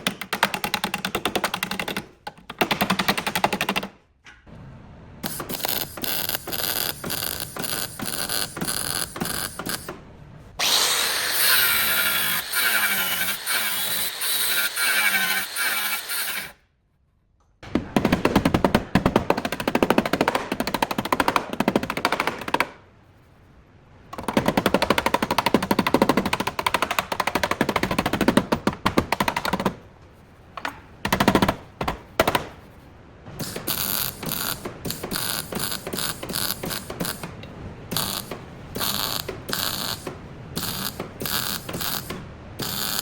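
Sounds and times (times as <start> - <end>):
power tool whirring: 10.6 - 16.6, 37.9 - 43.0.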